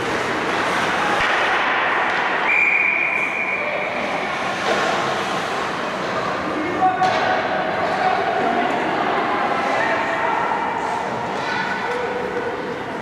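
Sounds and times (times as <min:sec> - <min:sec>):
skates on ice: 0:00.0 - 0:06.4.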